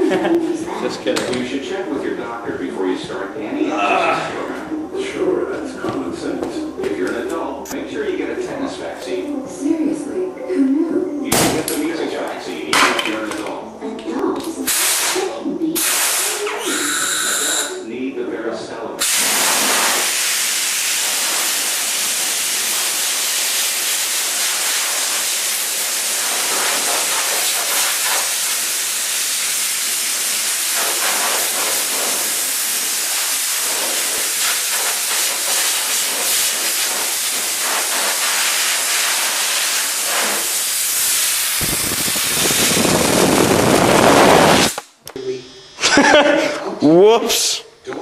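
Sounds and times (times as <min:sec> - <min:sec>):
compressed air hissing: 0:14.7 - 0:17.8, 0:19.0 - 0:45.0
deep air rush: 0:41.0 - 0:44.9.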